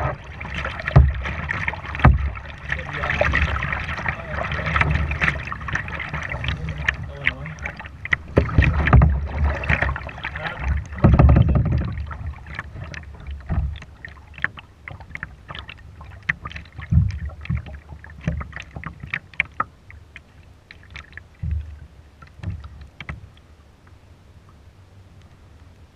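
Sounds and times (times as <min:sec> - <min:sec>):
low thumps: 0:00.0 - 0:13.8
paddle splashes in water: 0:00.0 - 0:23.4.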